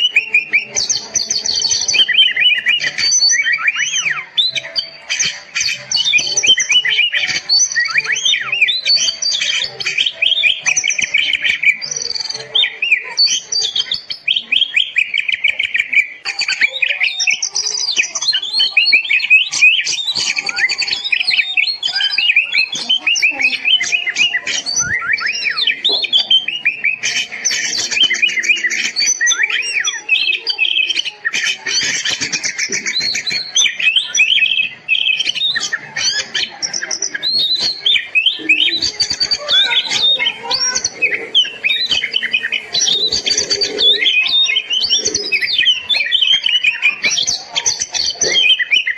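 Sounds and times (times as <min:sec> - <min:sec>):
songbird singing: 0:00.0 - 0:48.9.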